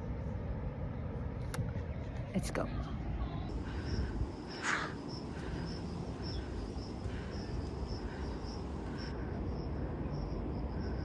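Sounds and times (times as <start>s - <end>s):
insect chirping: 3.5s - 11.0s.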